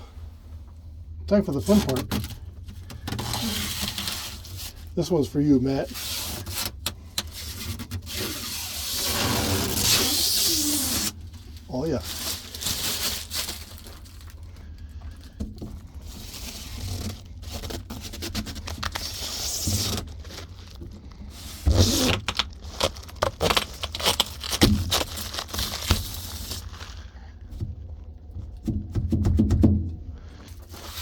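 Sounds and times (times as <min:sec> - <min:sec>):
protective film peeling off plastic: 0:01.7 - 0:04.8, 0:05.9 - 0:14.5, 0:16.1 - 0:27.1.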